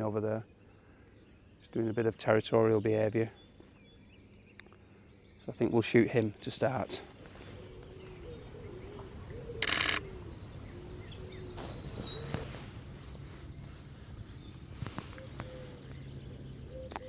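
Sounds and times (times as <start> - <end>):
small birds chirping: 0.0 - 17.0
rapid camera shutter clicks: 9.6 - 10.0.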